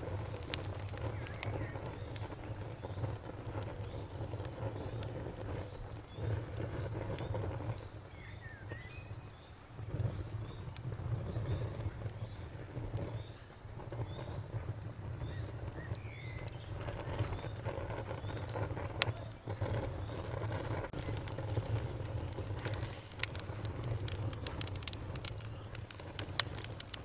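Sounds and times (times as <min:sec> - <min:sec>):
campfire crackling and popping: 0:00.0 - 0:27.0
crickets chirping: 0:00.0 - 0:27.0.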